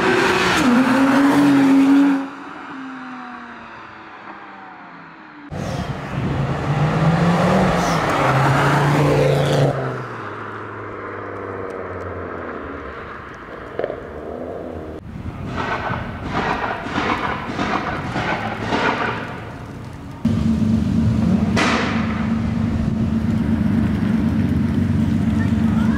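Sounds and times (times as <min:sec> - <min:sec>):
car engine accelerating: 0:05.5 - 0:15.0, 0:20.1 - 0:25.9.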